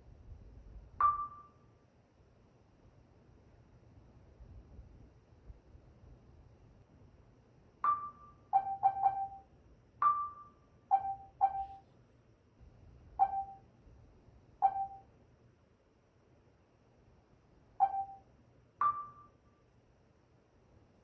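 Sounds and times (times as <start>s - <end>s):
electronic interface pings: 1.0s - 1.6s, 7.8s - 9.4s, 10.0s - 11.8s, 13.2s - 13.6s, 14.6s - 15.0s, 17.8s - 18.2s, 18.8s - 19.4s.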